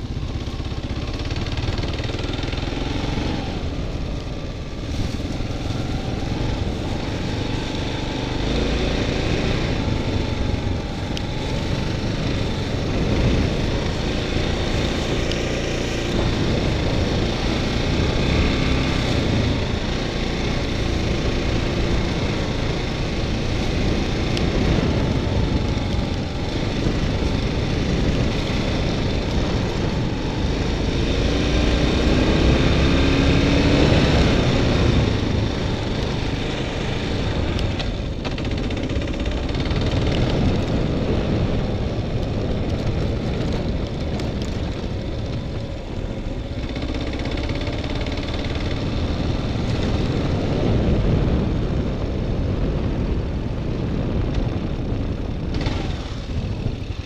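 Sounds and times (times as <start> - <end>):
motorcycle engine running: 0.0 - 57.0
wind buffeting the microphone: 0.0 - 57.0.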